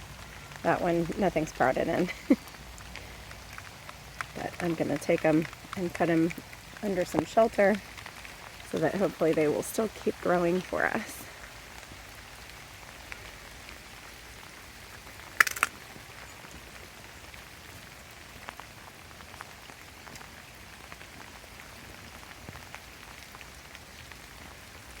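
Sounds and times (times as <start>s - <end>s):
raindrops ticking on surfaces: 0.0s - 25.0s
steady rain hiss: 0.0s - 25.0s
loud clatter of sharp clicks: 15.4s - 15.8s.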